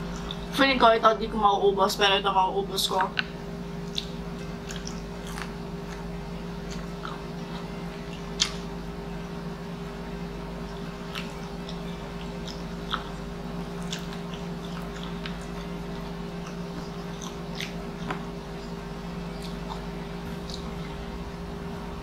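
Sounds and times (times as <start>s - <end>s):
steady low hum: 0.0s - 22.0s
person chewing noodles: 3.8s - 8.8s, 10.6s - 21.2s
sharp mouth clicks: 3.9s - 5.5s.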